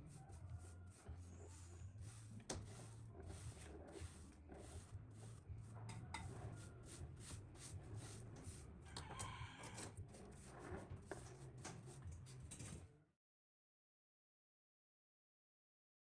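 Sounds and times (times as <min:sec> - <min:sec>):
rooster crowing: 0:00.0 - 0:01.6, 0:08.9 - 0:10.0
rhythmic hand tool strokes: 0:00.0 - 0:12.5.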